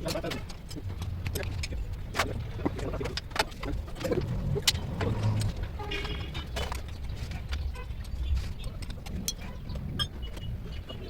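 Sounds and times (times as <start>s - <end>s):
low rumble: 0.9s - 7.1s.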